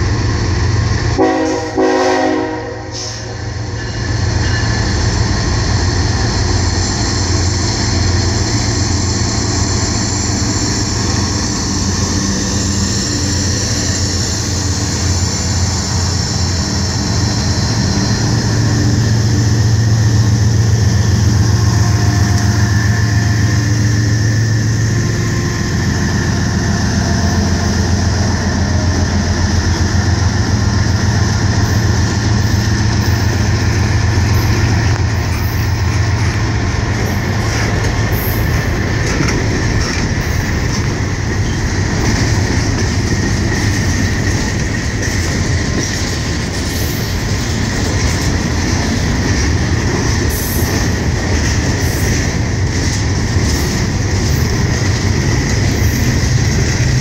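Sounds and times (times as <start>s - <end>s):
diesel locomotive drone: 0.0s - 57.0s
wheels clacking over rail joints: 34.4s - 57.0s.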